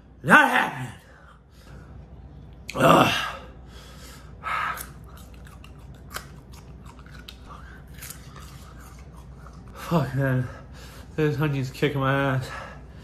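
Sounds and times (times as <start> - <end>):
man groaning: 2.7 - 3.5
crunchy chewing: 4.7 - 9.7.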